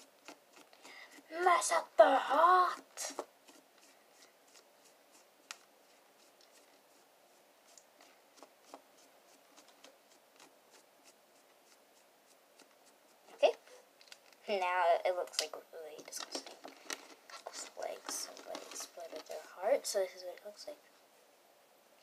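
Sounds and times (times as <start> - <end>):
slime kneaded by hand: 2.4 - 13.4.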